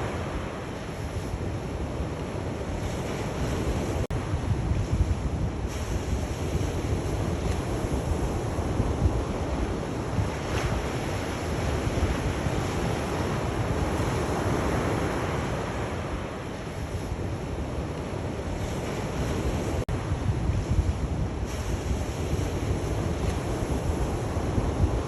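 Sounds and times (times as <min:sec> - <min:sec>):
sea waves breaking ashore: 0:00.0 - 0:25.0.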